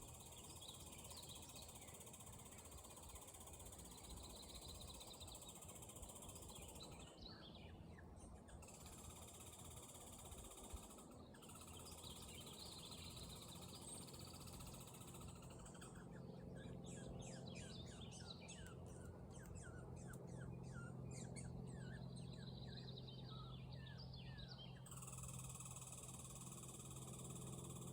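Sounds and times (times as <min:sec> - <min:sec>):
songbird chirping: 0:10.2 - 0:27.9.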